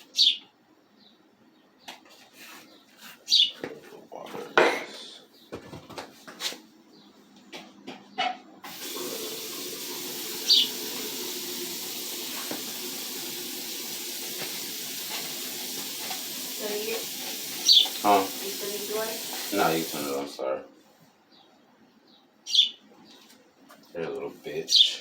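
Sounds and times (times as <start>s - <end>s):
water tap running into sink: 8.6s - 20.3s.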